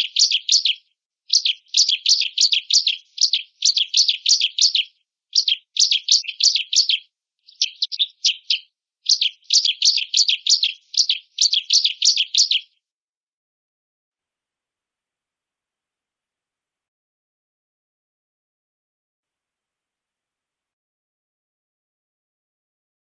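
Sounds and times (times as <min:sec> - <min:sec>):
bird chattering song: 0:00.0 - 0:12.7.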